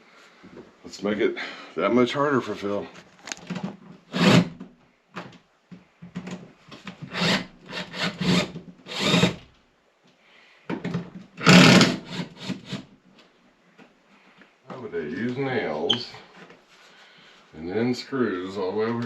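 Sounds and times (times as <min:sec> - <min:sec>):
cordless drill whirring: 0:04.1 - 0:04.5, 0:07.1 - 0:09.4, 0:11.4 - 0:12.8.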